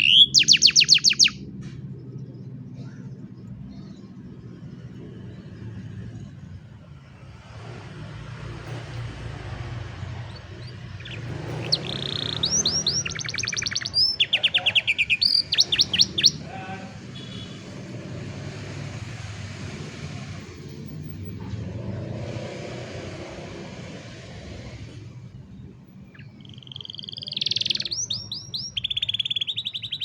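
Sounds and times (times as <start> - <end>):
canary singing: 0.0 - 1.5, 10.0 - 17.9, 26.0 - 30.0
low background hum: 0.0 - 7.4.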